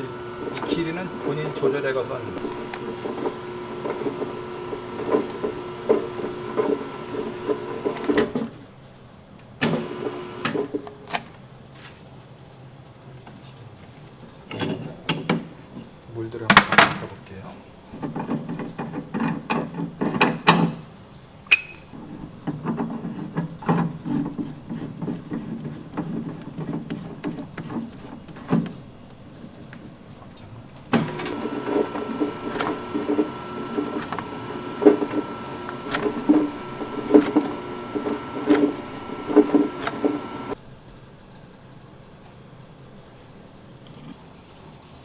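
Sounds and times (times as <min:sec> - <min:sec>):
pasta machine whining and knocking: 0:00.0 - 0:08.5, 0:09.6 - 0:10.8, 0:30.9 - 0:40.6.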